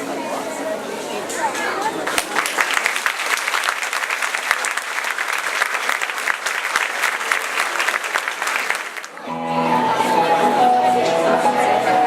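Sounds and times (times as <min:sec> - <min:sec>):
audience clapping: 0:02.0 - 0:09.3.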